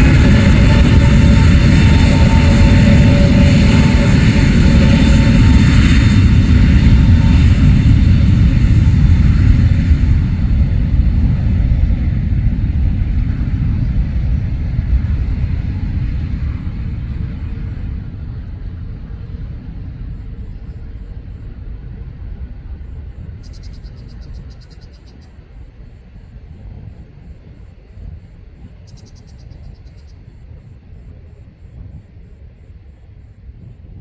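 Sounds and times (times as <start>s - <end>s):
jet engines roaring: 0.0s - 27.9s
insect trilling chirps: 23.4s - 25.4s, 28.8s - 30.4s.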